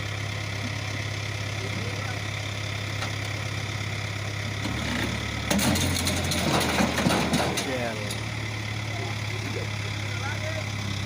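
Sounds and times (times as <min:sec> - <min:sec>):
tractor engine running: 0:00.0 - 0:11.0
sharp knocks and clatters: 0:04.6 - 0:08.2.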